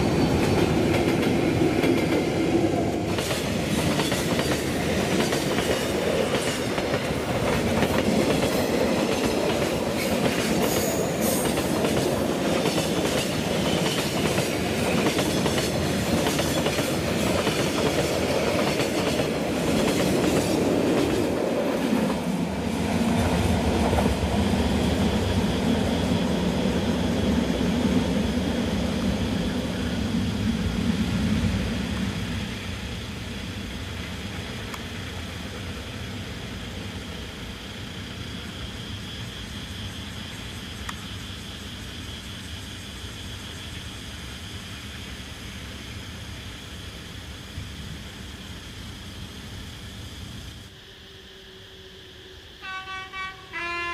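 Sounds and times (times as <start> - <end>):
diesel locomotive drone: 0.0 - 53.9.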